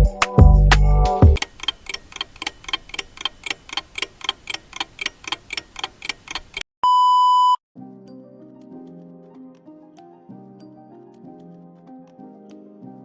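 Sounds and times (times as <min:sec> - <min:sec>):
clock ticking: 0:01.4 - 0:06.7
long steady beep: 0:06.8 - 0:07.6.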